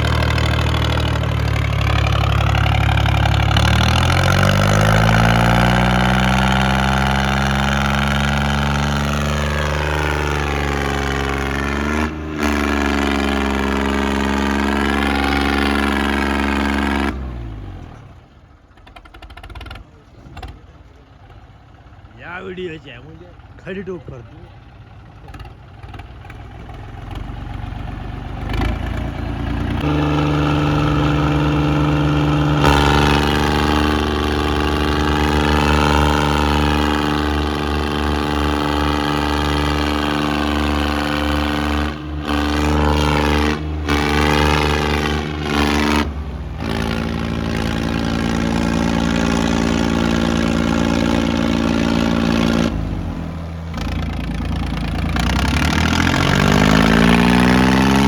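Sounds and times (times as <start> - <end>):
tractor diesel engine revving: 0.0 - 58.0.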